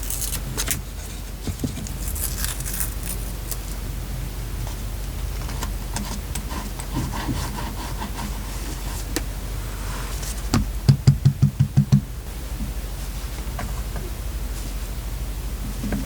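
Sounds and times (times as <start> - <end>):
paper rustling: 0.0 - 3.8.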